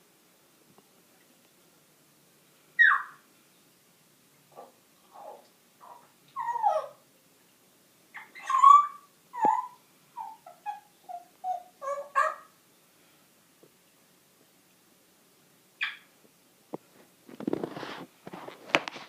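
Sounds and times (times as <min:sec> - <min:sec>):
parrot squeaks and chirps: 0:02.8 - 0:03.2, 0:08.2 - 0:12.5, 0:15.8 - 0:16.1.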